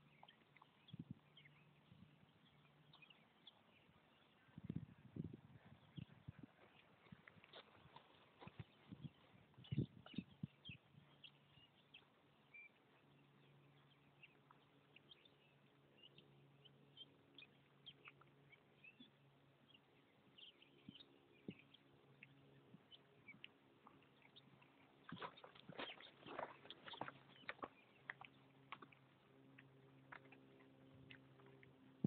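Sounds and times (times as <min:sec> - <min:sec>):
faint low hum: 0:00.0 - 0:32.0.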